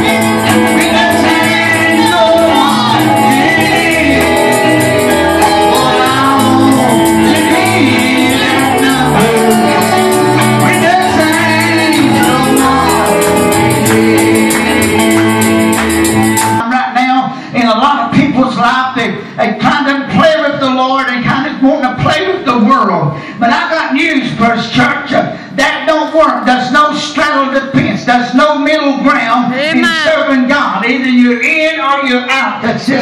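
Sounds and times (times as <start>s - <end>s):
bass line: 0.0s - 16.6s
shaken percussion beat: 0.0s - 16.6s
voices singing gospel music: 0.0s - 16.6s.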